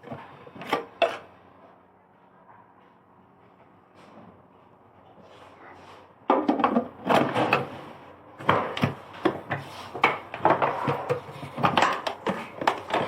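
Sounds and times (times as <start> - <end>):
hard objects knocking and clattering: 6.3 - 7.8, 8.4 - 13.0.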